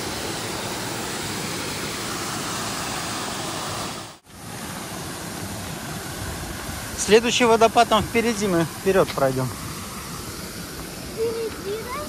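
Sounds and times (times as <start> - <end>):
water pouring over cascade: 0.0 - 12.0.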